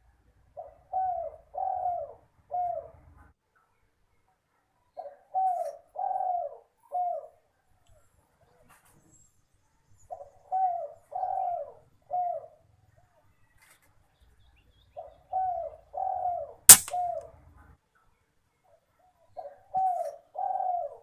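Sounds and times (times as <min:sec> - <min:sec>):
dove cooing: 0:00.6 - 0:02.8, 0:05.4 - 0:07.2, 0:19.7 - 0:21.0
gunshot: 0:16.7 - 0:17.0.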